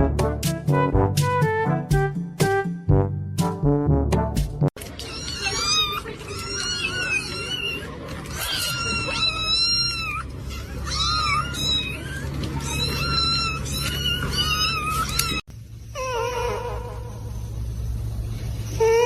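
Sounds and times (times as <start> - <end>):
cat meowing: 5.0 - 15.4
steady low hum: 15.5 - 18.8.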